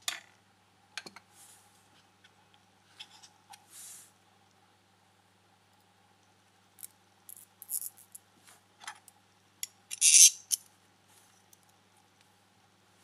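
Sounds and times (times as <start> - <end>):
small parts scraping: 9.9 - 10.6
light clicks of small parts: 11.4 - 12.3.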